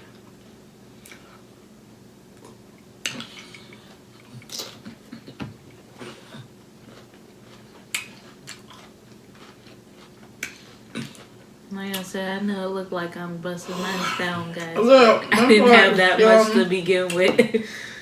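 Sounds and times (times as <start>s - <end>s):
soft chewing: 1.0s - 1.4s, 2.4s - 12.0s.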